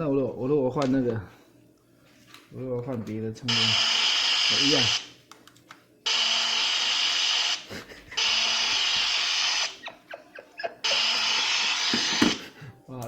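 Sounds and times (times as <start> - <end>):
harsh static hiss from phone speaker: 3.5 - 5.2, 6.1 - 9.9, 10.8 - 12.5.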